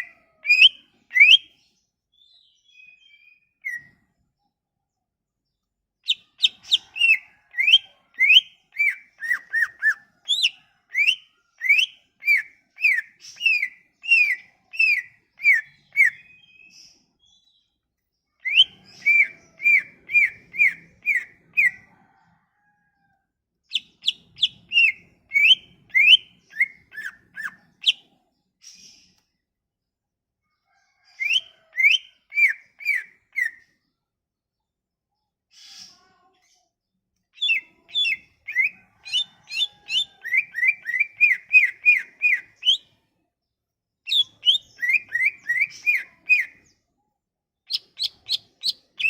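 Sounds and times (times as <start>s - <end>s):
bird singing whistled notes: 0.0s - 1.6s, 2.2s - 3.9s, 6.1s - 17.6s, 18.4s - 21.8s, 23.7s - 28.0s, 31.2s - 33.6s, 37.4s - 42.9s, 44.1s - 46.6s, 47.7s - 49.0s.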